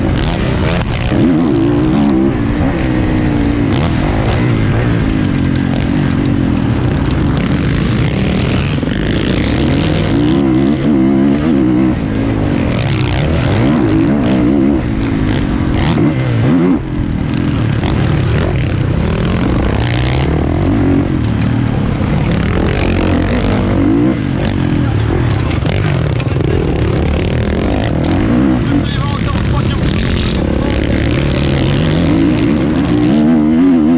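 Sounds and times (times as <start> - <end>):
wind noise: 0.0 - 25.6
motorcycle engine revving: 0.0 - 33.9.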